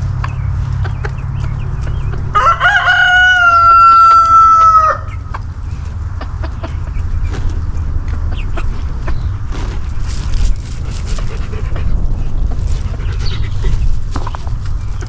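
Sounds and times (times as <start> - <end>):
rooster crowing: 2.3 - 5.2.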